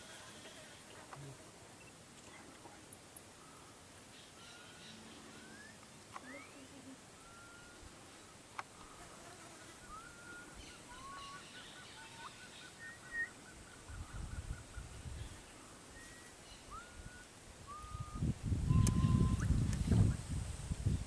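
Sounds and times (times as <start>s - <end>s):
birds whistling: 4.4s - 7.9s, 9.8s - 19.6s.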